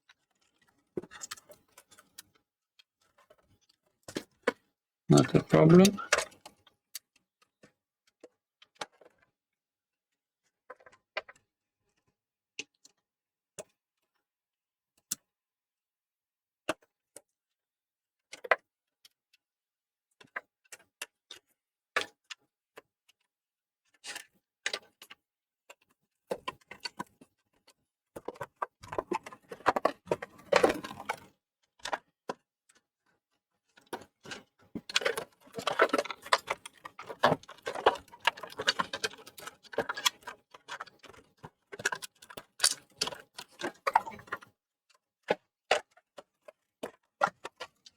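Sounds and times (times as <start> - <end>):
plastic and metal parts clicking: 33.8 - 44.5.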